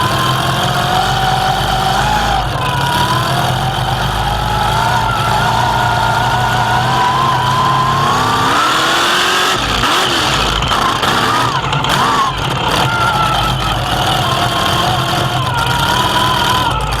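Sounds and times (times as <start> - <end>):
rumble of driving noise: 0.0 - 17.0
truck engine revving: 0.0 - 17.0.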